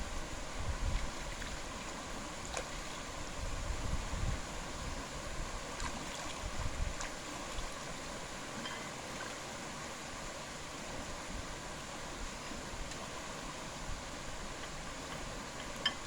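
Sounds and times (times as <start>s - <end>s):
wind buffeting microphone: 0.0s - 1.7s, 3.2s - 5.6s, 6.4s - 7.1s
outdoor hiss: 0.0s - 16.0s.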